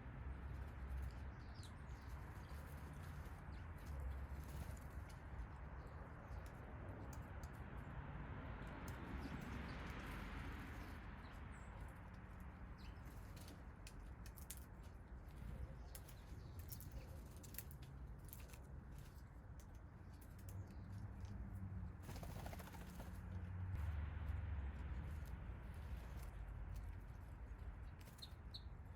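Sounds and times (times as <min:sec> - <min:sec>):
birds clicking and tapping: 0:08.6 - 0:23.5
wing flutter: 0:22.0 - 0:23.4.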